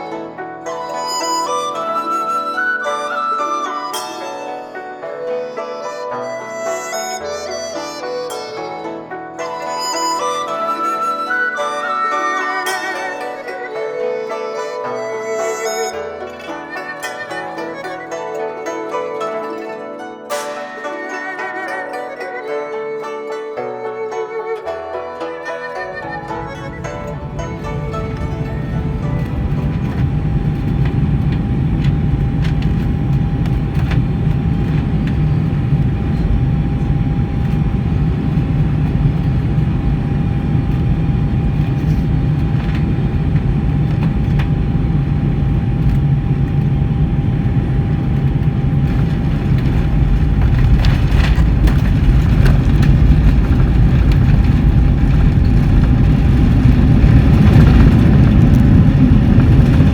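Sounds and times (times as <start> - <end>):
aircraft cabin engine rumble: 26.3 - 59.9.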